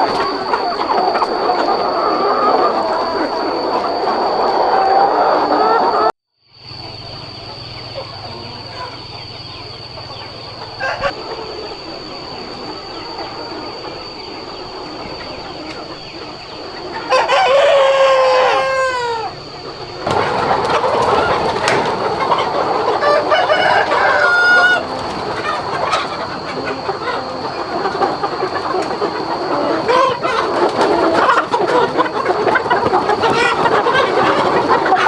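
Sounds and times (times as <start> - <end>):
chickens clucking: 0.0 - 35.0
rooster crowing: 8.1 - 11.2, 16.9 - 35.0.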